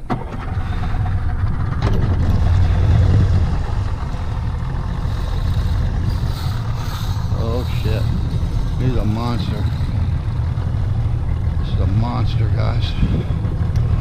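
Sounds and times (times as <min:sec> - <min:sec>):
boat motor rumbling: 0:00.0 - 0:14.0.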